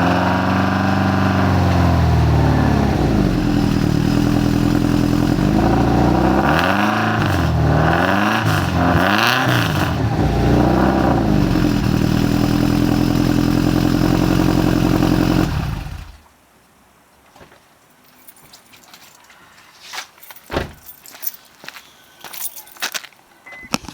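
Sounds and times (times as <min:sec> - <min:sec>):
car engine revving and idling: 0:00.0 - 0:16.2.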